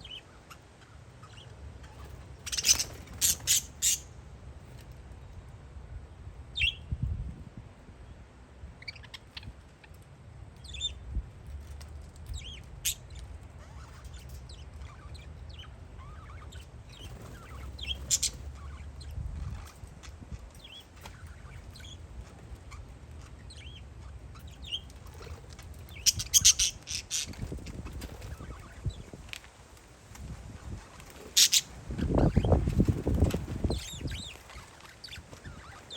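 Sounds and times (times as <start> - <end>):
parakeets chirping: 0.0 - 4.9, 8.8 - 10.0, 10.6 - 29.3, 30.5 - 35.9
wind rumbling on microphone: 5.8 - 9.6, 13.8 - 23.8, 24.4 - 35.9.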